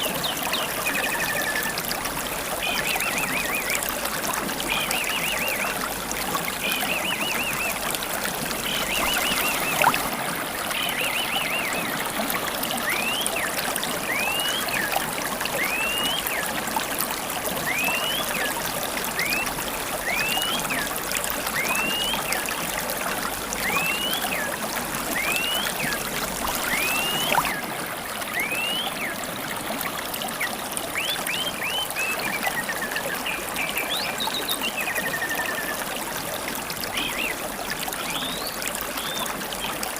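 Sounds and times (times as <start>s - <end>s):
stream trickling: 0.0s - 39.9s
birdsong: 8.5s - 10.0s, 10.7s - 12.1s, 23.6s - 27.6s, 30.4s - 35.8s, 36.9s - 37.4s.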